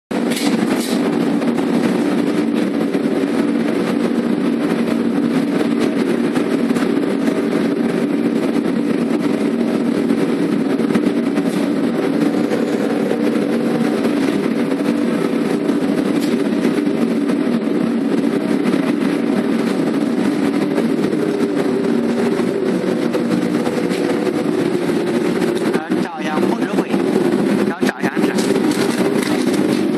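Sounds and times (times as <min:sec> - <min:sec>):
electric arc furnace buzzing: 0:00.1 - 0:29.9.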